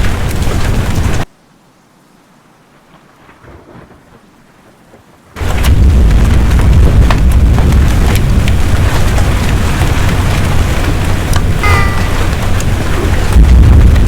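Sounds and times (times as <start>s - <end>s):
thunder rumble: 0.0s - 1.2s, 5.4s - 14.0s
sharp raindrop impacts: 0.0s - 1.3s, 2.9s - 14.0s
heavy rain: 0.0s - 14.0s
wind: 0.0s - 14.0s.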